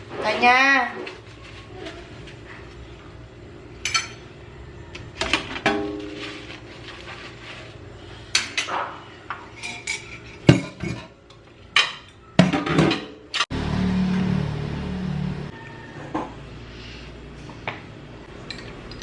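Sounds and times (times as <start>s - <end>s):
dishes and cutlery clinking: 3.8s - 4.3s, 8.3s - 13.2s.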